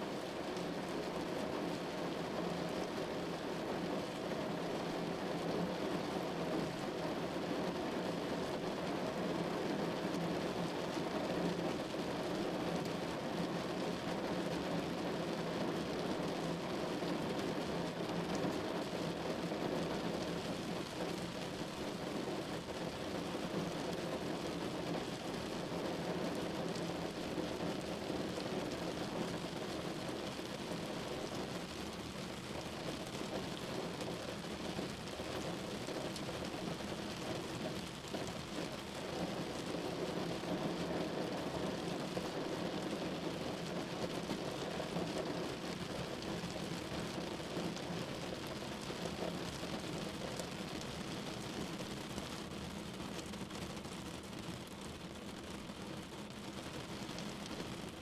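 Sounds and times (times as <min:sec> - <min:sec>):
rain on a window: 0:00.0 - 0:58.0.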